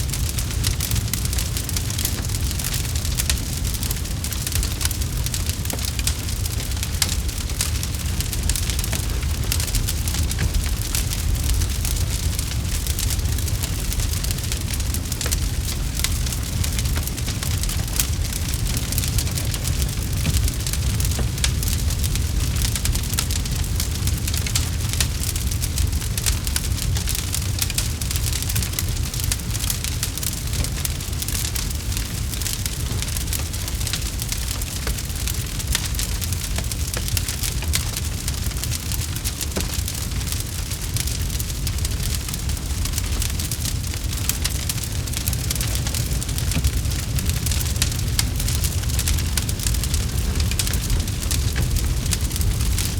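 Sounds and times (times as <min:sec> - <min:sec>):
campfire crackling: 0:00.0 - 0:52.9
low rumble of flames: 0:00.0 - 0:52.9.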